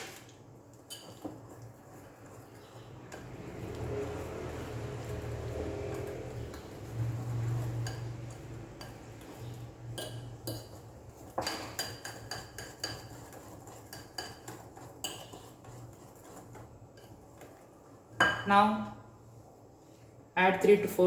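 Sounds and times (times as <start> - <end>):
spoon clinking against bowl: 7.6 - 15.5, 18.2 - 18.5.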